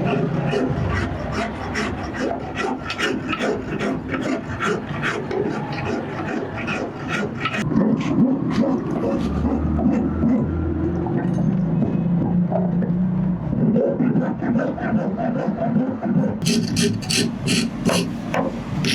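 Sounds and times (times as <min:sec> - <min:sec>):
hand tool rasping on steel: 0:00.0 - 0:07.6, 0:16.4 - 0:18.9.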